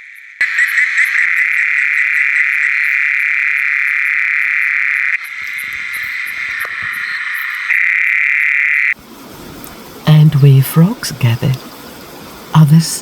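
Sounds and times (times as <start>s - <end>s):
chorus of frogs calling: 0.0s - 9.0s.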